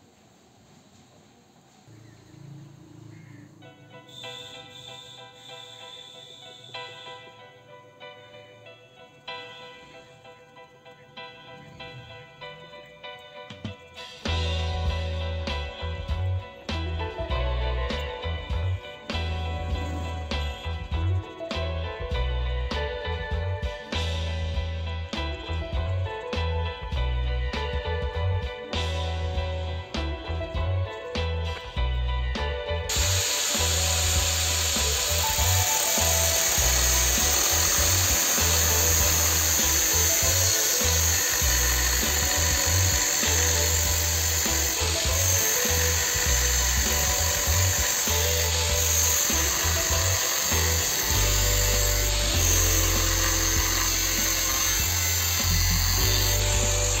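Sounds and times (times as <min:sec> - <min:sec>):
music with pulsing bass: 0:14.2 - 0:57.0
angle grinder cutting steel: 0:32.9 - 0:57.0.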